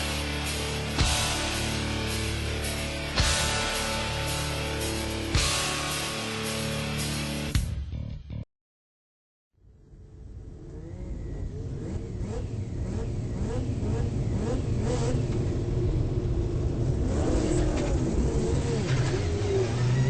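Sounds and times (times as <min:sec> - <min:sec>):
race car rotary engine running: 0:10.0 - 0:20.0.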